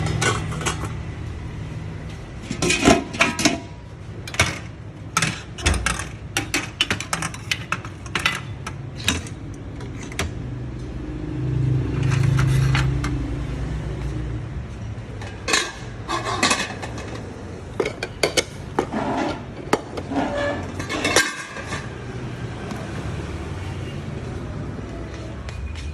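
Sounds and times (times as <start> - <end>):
dishes and pots clinking: 15.2 - 22.0.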